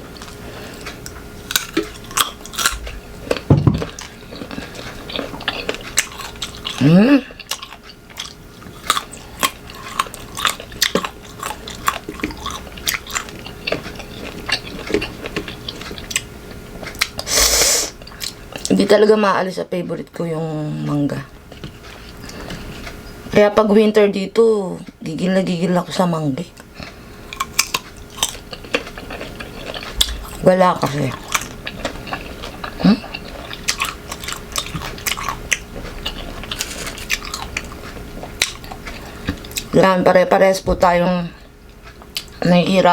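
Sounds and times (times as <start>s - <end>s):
crunching and chewing mango: 0.0s - 17.3s, 18.0s - 18.8s, 26.5s - 39.8s, 41.4s - 42.5s.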